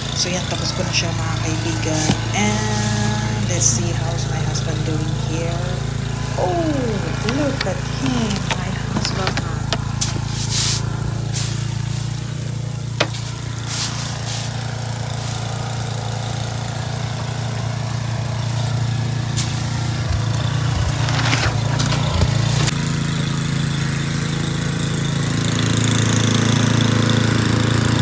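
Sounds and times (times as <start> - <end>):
snowblower engine running: 0.0 - 28.0
hissing bursts: 5.7 - 22.7
clicks: 6.2 - 11.2.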